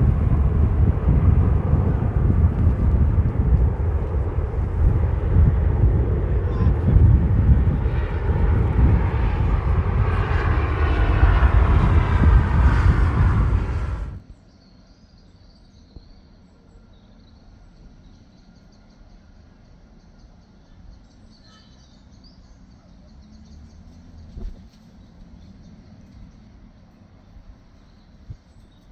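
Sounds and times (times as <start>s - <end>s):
jet engines roaring: 0.0s - 14.2s.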